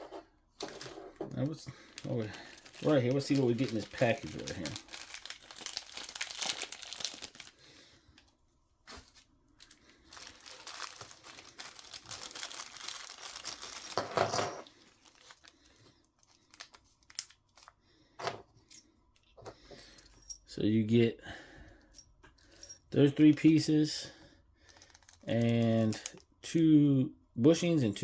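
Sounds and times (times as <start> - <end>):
plastic bag crinkling and tearing: 0.6 - 7.9, 8.9 - 14.0, 14.7 - 17.8, 24.6 - 26.3.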